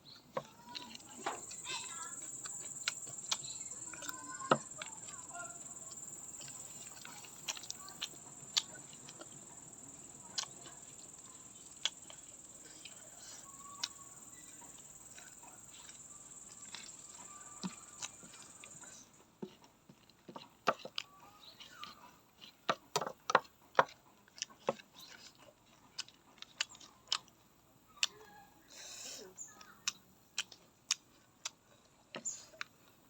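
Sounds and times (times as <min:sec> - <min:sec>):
crickets chirring: 0:00.2 - 0:19.2.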